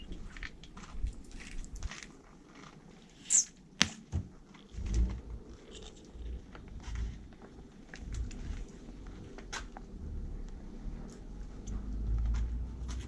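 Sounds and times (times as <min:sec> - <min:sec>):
heavy low crunch: 0:03.8 - 0:13.0.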